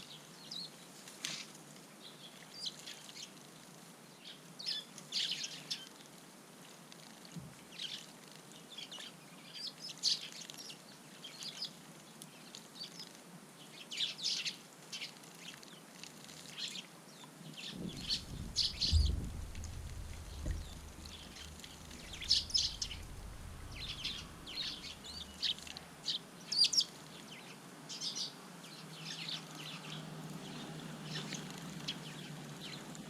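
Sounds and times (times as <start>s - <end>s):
sparrows chirping: 16.6s - 33.0s
low rumble: 17.7s - 25.7s.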